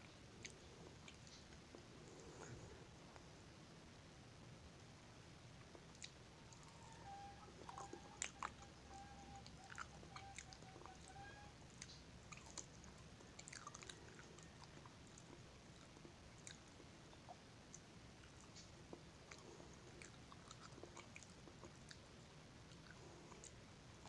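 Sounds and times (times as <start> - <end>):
person chewing soft food: 0.1 - 3.3, 5.6 - 24.0
mouth clicks and smacks: 5.6 - 6.7.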